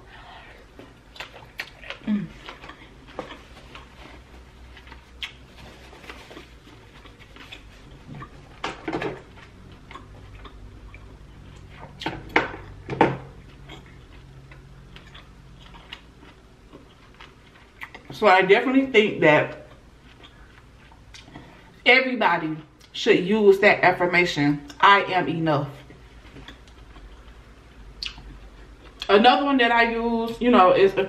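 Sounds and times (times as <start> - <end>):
chewing with wet mouth clicks: 1.1 - 3.9, 4.8 - 5.4, 9.3 - 12.8, 13.4 - 18.1, 19.6 - 21.4, 26.3 - 27.4, 28.0 - 29.1
lip smacks: 5.2 - 5.4.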